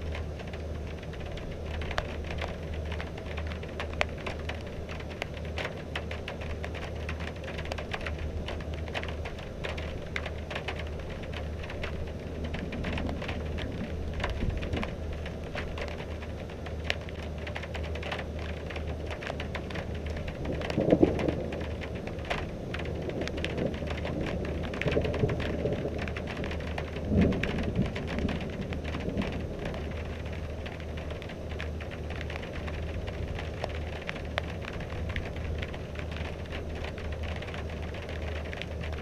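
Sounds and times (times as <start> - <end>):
rain drops on hard surface: 0.0 - 39.0.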